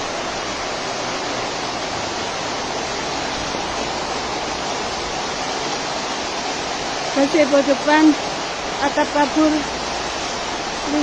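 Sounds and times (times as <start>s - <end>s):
heavy rain: 0.0s - 11.0s
wind: 0.0s - 11.0s.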